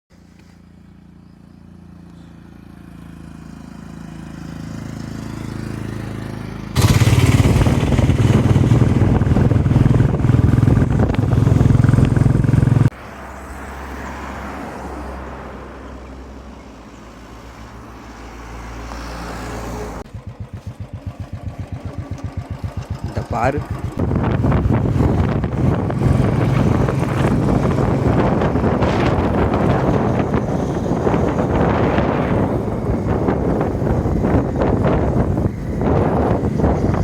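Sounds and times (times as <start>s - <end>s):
motorcycle engine running: 0.7s - 12.9s, 20.0s - 37.0s
loud rough rushing noise: 6.7s - 13.0s, 20.0s - 37.0s.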